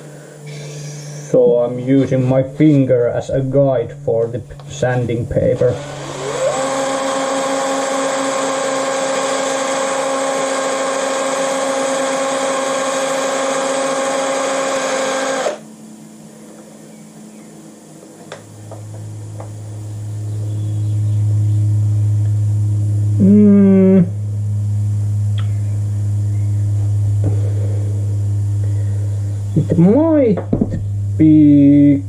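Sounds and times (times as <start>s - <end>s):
low hum: 0.0s - 8.6s, 15.5s - 32.0s
electric drill whining: 5.6s - 15.7s.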